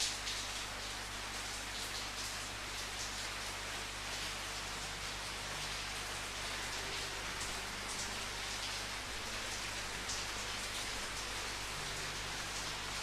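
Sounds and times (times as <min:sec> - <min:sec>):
rain pattering on surface: 0:00.0 - 0:13.0.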